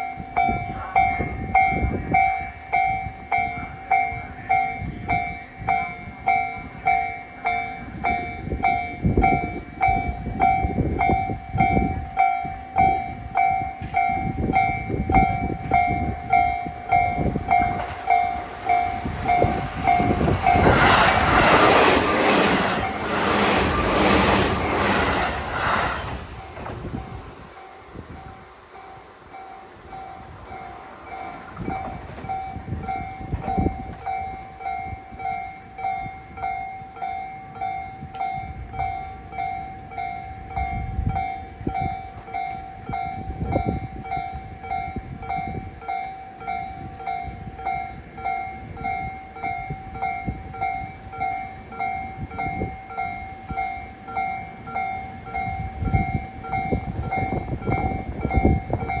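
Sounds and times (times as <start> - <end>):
train clattering over rails: 6.6 - 34.6.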